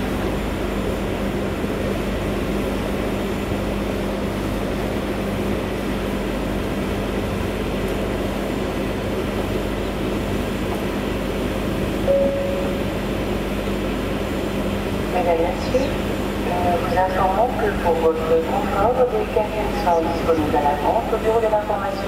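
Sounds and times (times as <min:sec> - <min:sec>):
ferry machinery hum: 0:00.0 - 0:22.0
short single chime: 0:12.1 - 0:13.0.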